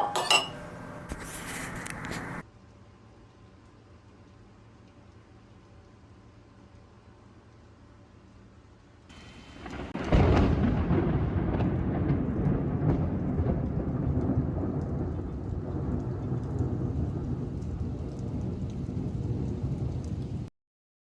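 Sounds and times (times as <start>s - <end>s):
steady rain: 1.1s - 20.5s
faint raindrop ticks: 2.7s - 9.0s, 12.4s - 20.4s
rolling thunder: 9.2s - 20.5s.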